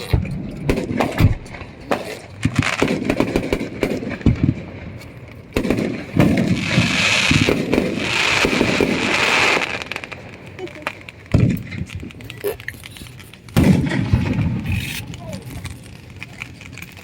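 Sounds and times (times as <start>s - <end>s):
fireworks bangs and pops: 0.0s - 17.0s
fireworks hissing crackle: 0.0s - 17.0s.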